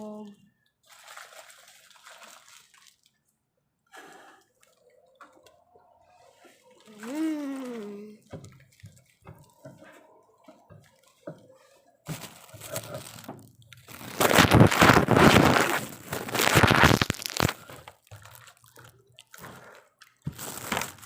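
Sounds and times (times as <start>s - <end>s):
crunching while eating: 12.1s - 21.0s.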